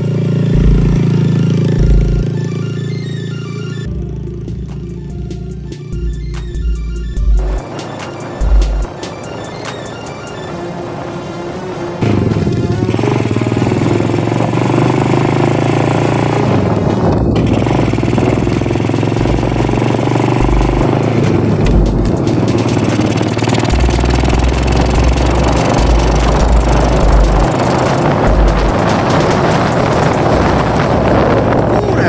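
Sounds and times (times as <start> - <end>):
motorcycle engine running: 0.0 - 10.5, 12.0 - 32.0
deep low rumble: 0.5 - 1.2, 1.8 - 2.3, 3.9 - 7.7, 16.4 - 22.3, 23.7 - 32.0.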